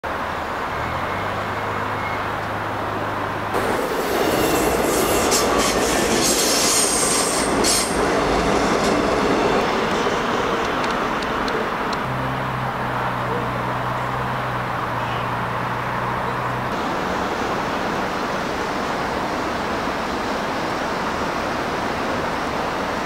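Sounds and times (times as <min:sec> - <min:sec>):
electric train passing: 0:00.1 - 0:23.0
wheel squeal: 0:00.8 - 0:02.4.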